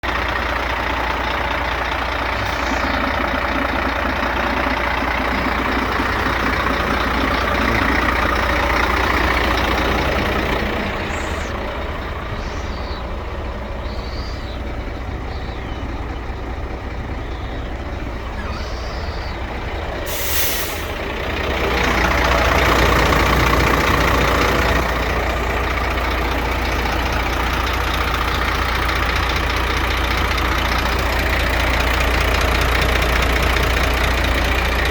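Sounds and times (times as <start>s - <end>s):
diesel truck engine running: 0.0s - 34.9s
air brake hiss: 20.1s - 21.0s.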